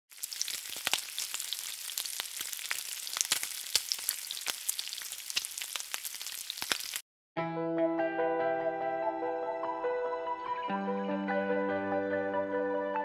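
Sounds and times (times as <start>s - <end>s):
oil sizzling in a pan: 0.1s - 7.0s.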